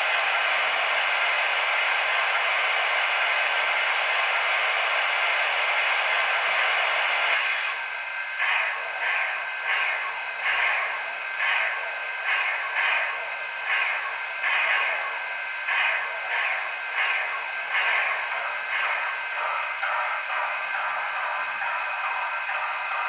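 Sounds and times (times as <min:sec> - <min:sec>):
model locomotive steam hiss: 0:00.0 - 0:23.0
steam exhaust chuffs: 0:00.0 - 0:23.0.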